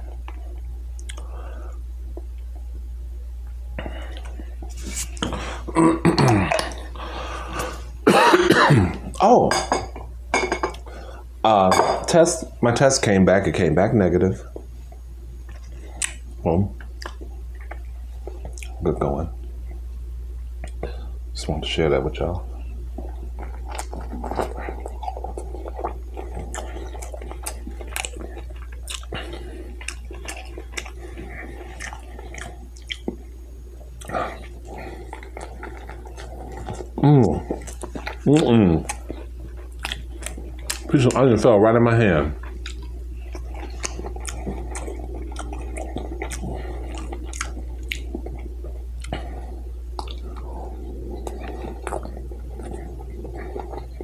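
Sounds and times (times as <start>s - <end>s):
steady low hum: 0.0s - 54.0s
mouth clicks and lip smacks: 0.2s - 1.3s, 15.5s - 16.2s, 16.8s - 18.8s, 20.6s - 20.9s, 50.0s - 50.4s
wet mouth clicks and smacks: 1.0s - 1.3s, 15.5s - 16.2s
chewing food: 15.4s - 16.2s, 16.8s - 18.8s, 23.0s - 41.4s, 42.3s - 54.0s.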